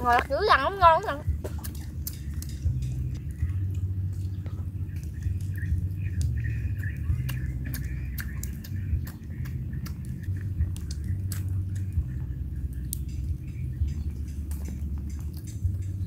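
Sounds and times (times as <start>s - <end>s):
low rumble: 0.0s - 16.0s
chewing and mouth clicks: 1.2s - 16.0s.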